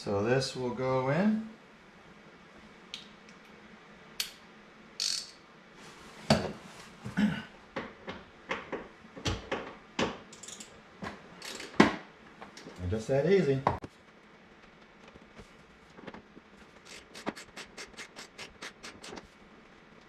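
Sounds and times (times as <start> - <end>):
ratchet wrench clicking: 5.0 - 5.4, 10.3 - 10.7.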